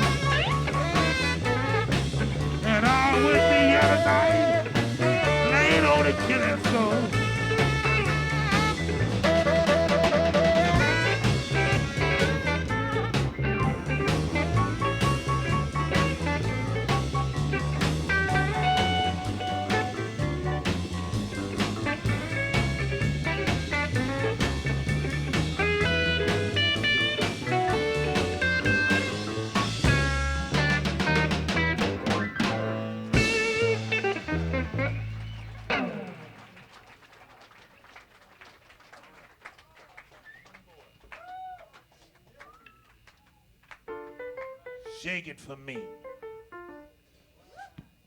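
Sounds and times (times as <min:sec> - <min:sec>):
lead electric guitar: 0:00.0 - 0:36.8
walking bass: 0:00.0 - 0:36.9
drum kit: 0:00.0 - 0:37.1.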